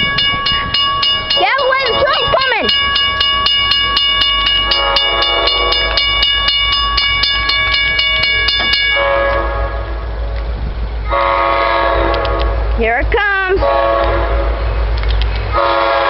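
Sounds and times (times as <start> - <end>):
regular ticking: 0.0 - 9.0
train rumble: 0.0 - 16.0
locomotive air horn: 4.7 - 6.1, 8.9 - 10.2, 11.0 - 12.7, 13.6 - 14.6, 15.5 - 16.0.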